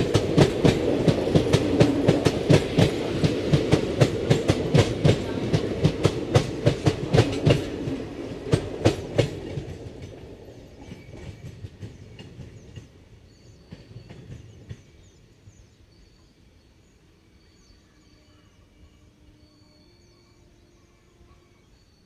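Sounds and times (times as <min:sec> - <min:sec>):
train wheels clacking over rail joints: 0:00.0 - 0:15.1.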